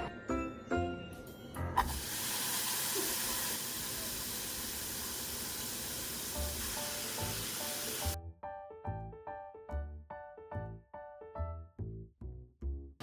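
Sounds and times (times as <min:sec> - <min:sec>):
quiet music: 0:00.0 - 0:01.9.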